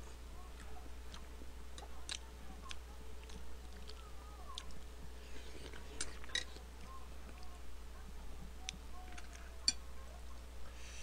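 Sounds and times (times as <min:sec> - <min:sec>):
person chewing food: 0:00.1 - 0:07.6.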